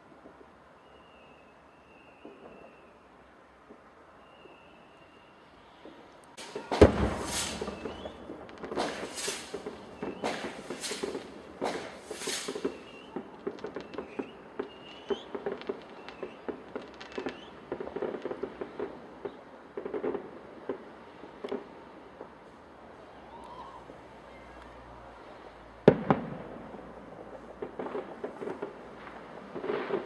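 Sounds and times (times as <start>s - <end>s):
small firework pops and crackles: 0.1s - 30.0s
hissing firework bursts: 0.2s - 30.0s
firework bang: 6.4s - 20.8s, 25.8s - 30.0s.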